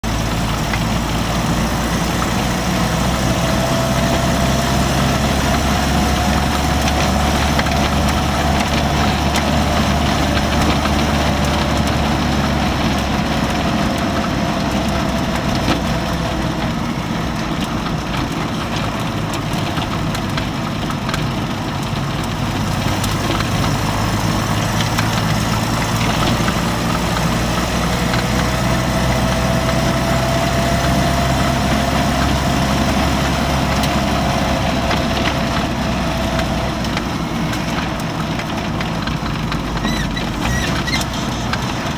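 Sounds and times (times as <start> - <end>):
vehicle engine running: 0.0 - 41.9.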